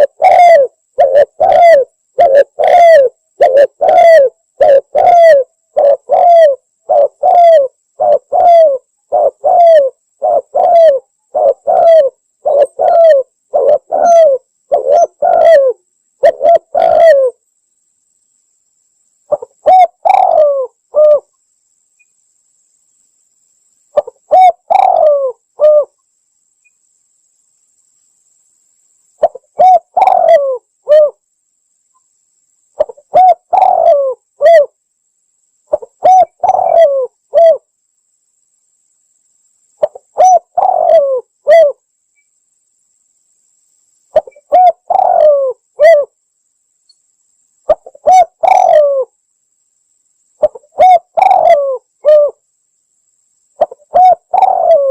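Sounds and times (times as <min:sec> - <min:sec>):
dove cooing: 0:00.0 - 0:17.4, 0:19.3 - 0:21.3, 0:24.0 - 0:25.9, 0:29.2 - 0:31.2, 0:32.8 - 0:34.8, 0:35.7 - 0:37.7, 0:39.8 - 0:41.8, 0:44.2 - 0:46.2, 0:47.7 - 0:49.1, 0:50.4 - 0:52.4, 0:53.6 - 0:54.9.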